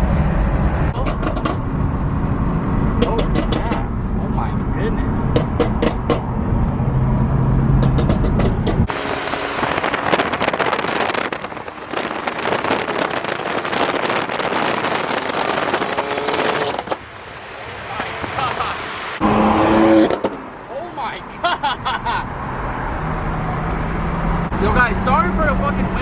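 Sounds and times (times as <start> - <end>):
car exhausts rumbling and popping: 0.0 - 20.7
wind on microphone: 5.2 - 17.0.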